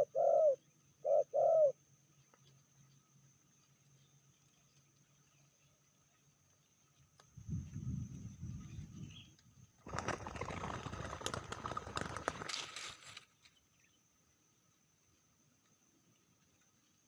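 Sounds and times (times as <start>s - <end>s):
dove wings flapping: 9.8s - 13.2s.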